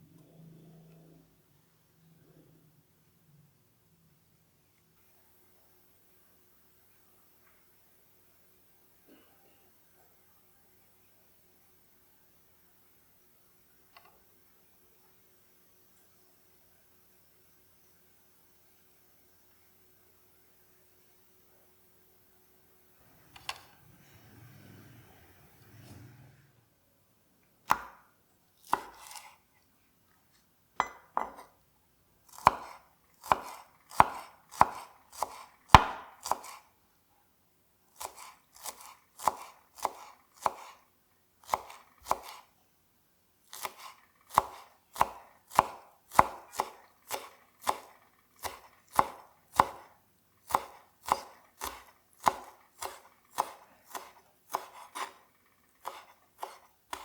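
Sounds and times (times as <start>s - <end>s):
knife chopping on cutting board: 27.7s - 28.0s, 28.6s - 29.4s, 30.8s - 31.5s, 32.3s - 36.6s, 38.0s - 40.8s, 41.4s - 42.5s, 43.5s - 57.0s.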